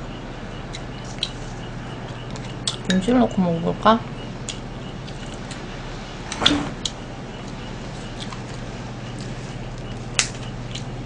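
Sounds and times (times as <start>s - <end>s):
steady low hum: 0.0s - 11.0s
wet mouth clicks chewing: 2.1s - 2.9s, 4.4s - 5.6s, 6.4s - 10.9s.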